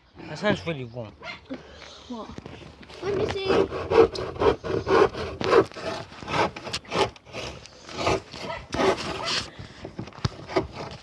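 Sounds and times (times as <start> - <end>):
rough scraping on wood: 2.3 - 11.0.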